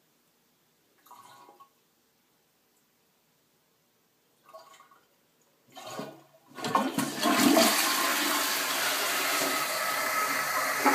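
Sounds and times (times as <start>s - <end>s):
toilet flushing water rushing: 5.8s - 10.9s.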